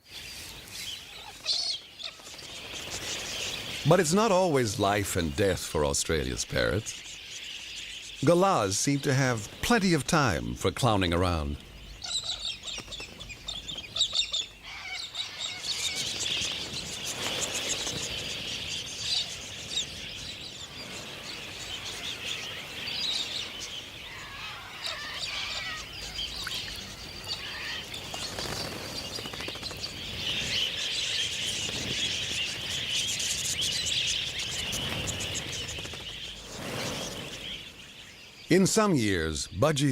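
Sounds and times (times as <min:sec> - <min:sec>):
parrots chirping and screeching: 0:11.7 - 0:37.7.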